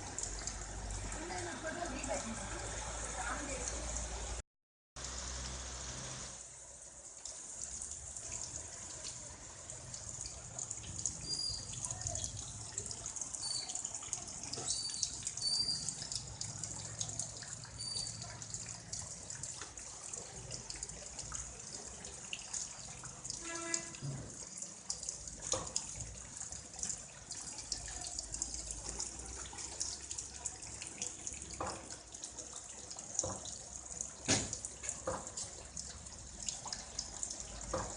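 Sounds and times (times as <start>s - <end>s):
drips and patters: 0.0s - 4.4s, 5.0s - 37.9s.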